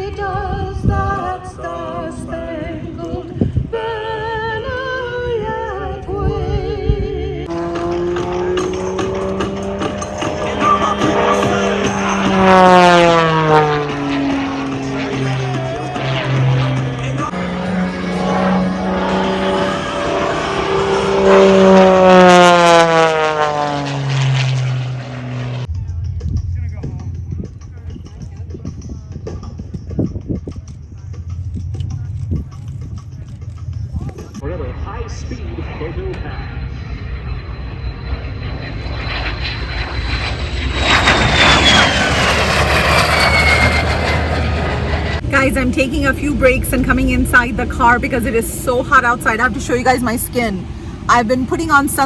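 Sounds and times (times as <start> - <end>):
aircraft fast low pass: 0.0 - 52.0.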